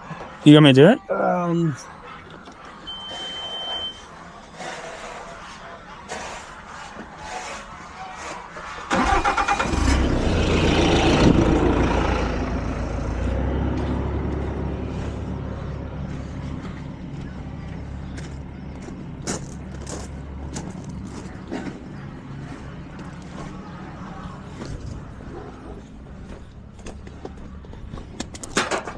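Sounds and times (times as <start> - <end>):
loader engine starting and idling: 8.2 - 28.9.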